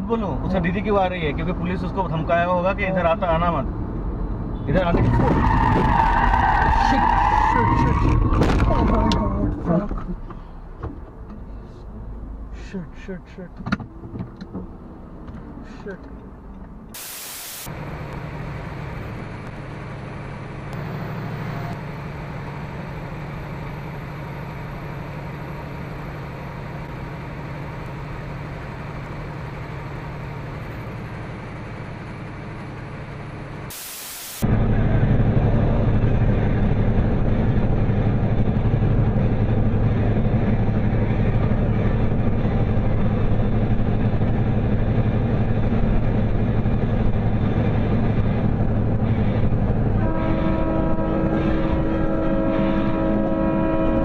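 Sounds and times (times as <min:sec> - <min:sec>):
car road and engine noise: 0:00.0 - 0:54.0.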